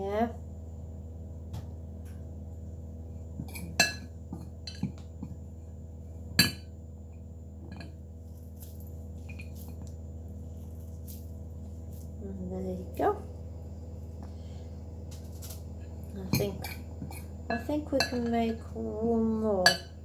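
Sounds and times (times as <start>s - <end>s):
steady low hum: 0.0s - 20.0s
kitchenware clinking: 3.5s - 4.1s, 16.3s - 18.8s, 19.6s - 20.0s.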